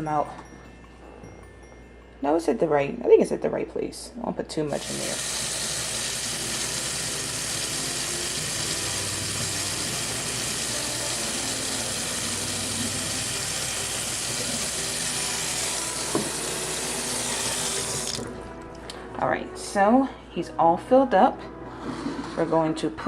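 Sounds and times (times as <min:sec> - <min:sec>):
tap water filling container: 0:04.8 - 0:18.3.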